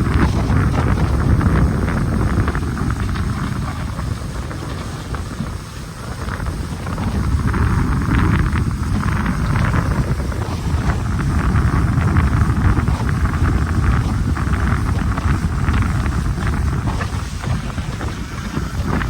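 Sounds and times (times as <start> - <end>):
wind buffeting microphone: 0.0 - 19.0
bulldozer diesel engine rumbling: 6.8 - 19.0.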